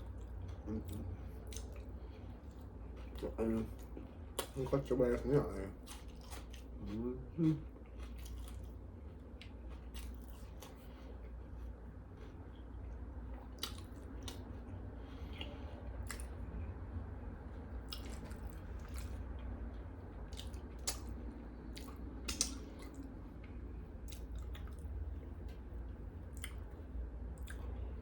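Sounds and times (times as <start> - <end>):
chewing food: 0.0 - 28.0
steady low hum: 0.0 - 28.0
mouth clicks and smacks: 20.4 - 23.1.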